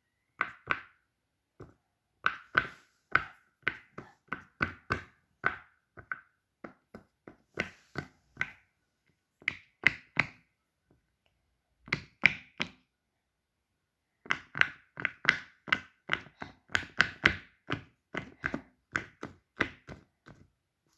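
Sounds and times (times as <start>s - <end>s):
plastic fidget toy tapping: 0.4s - 1.0s, 1.6s - 8.7s, 9.4s - 10.5s, 14.3s - 20.4s.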